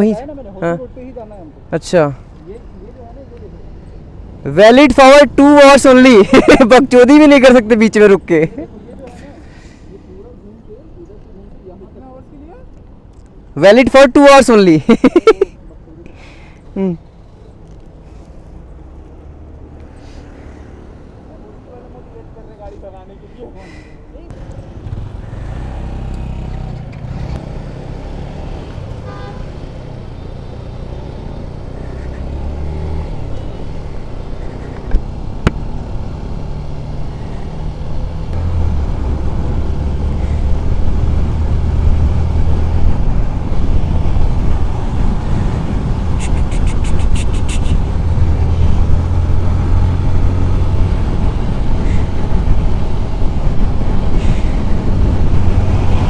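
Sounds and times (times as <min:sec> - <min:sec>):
motorcycle engine accelerating: 0:24.3 - 0:56.0
wind rumble on microphone: 0:37.2 - 0:56.0.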